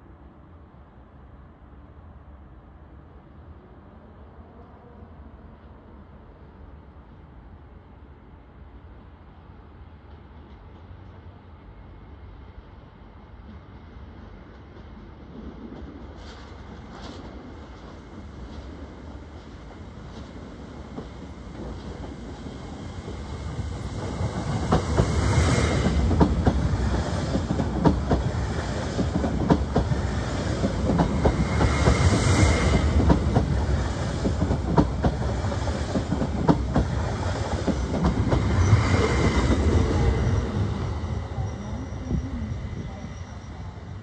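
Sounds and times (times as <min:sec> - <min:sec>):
high squeals or hisses: 0:38.6 - 0:44.0.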